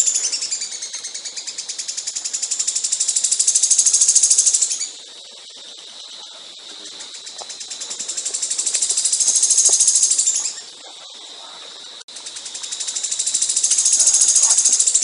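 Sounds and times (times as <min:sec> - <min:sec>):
songbird high-pitched trill: 0:00.0 - 0:05.0, 0:12.6 - 0:15.0
faint bird pulsing: 0:00.0 - 0:15.0.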